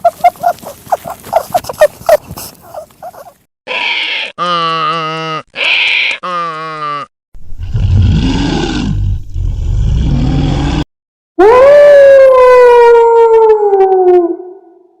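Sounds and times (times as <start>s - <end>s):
low growling roar: 7.6s - 10.9s.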